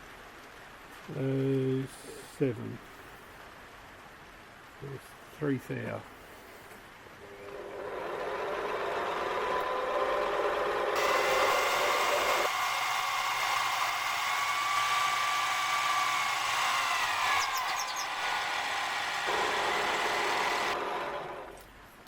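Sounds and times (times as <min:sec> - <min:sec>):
lathe motor whining: 0:07.2 - 0:21.6.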